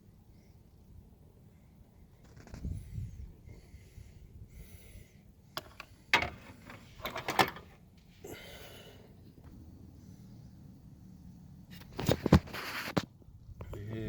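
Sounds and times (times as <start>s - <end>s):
metal tools clinking: 5.6s - 7.7s.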